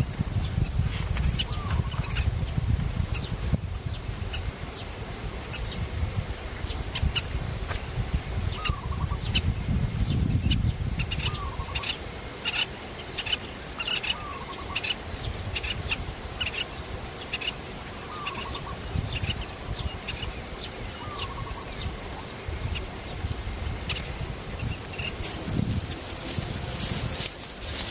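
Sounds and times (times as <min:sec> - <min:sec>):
birds chirping: 0:00.4 - 0:02.6, 0:10.1 - 0:27.9.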